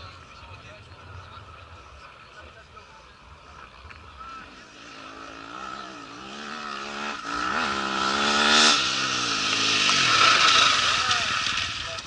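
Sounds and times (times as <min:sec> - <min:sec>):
motorcycle engine revving: 0:03.6 - 0:12.0.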